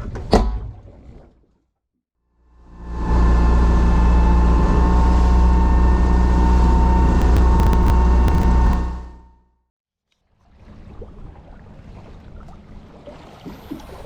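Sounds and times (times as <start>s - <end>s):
boat engine running: 2.7s - 9.0s
sharp clicks: 7.2s - 8.8s.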